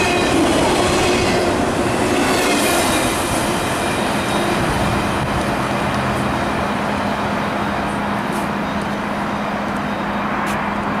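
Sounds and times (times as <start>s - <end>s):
train cars rolling on rails: 0.0s - 11.0s.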